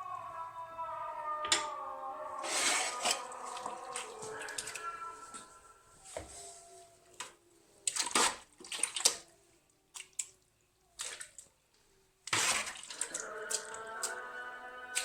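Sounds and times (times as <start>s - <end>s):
liquid sloshing in a container: 7.8s - 9.3s, 12.2s - 14.1s.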